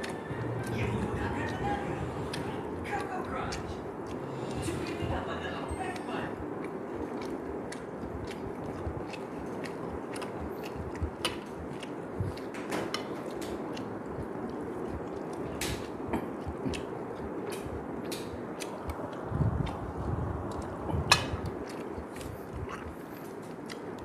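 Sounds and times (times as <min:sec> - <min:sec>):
chewing mouth sounds: 0:00.0 - 0:24.0
steady background noise: 0:00.0 - 0:24.0.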